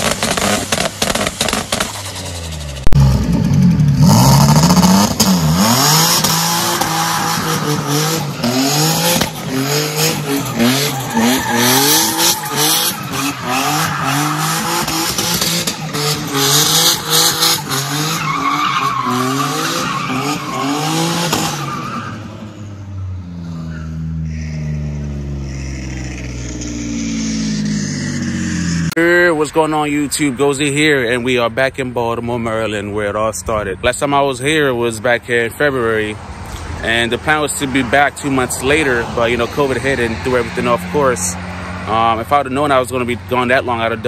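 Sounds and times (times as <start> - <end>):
car engine revving: 0.0 - 29.0
tyres squealing: 5.5 - 22.6.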